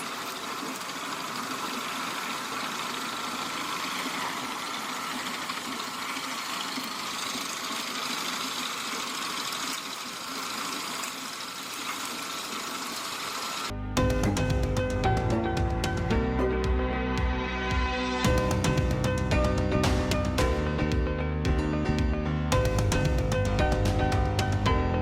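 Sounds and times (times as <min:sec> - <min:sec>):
wood chipper running: 0:00.0 - 0:15.6.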